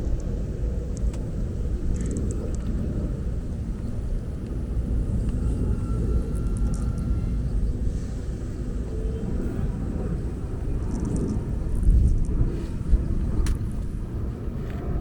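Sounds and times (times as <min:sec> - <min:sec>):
aeroplane passing overhead: 0:00.0 - 0:15.0.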